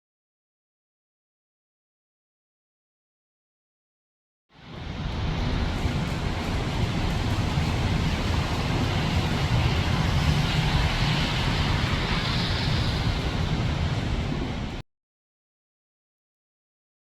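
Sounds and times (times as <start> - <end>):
train running with low rumble: 4.5 - 14.8
rushing hiss: 8.6 - 14.4.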